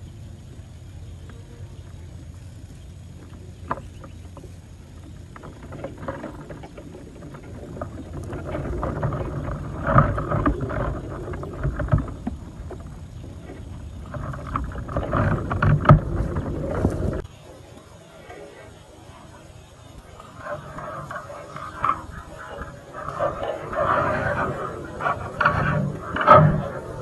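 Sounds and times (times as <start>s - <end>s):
water splashing and sloshing: 3.7s - 17.3s.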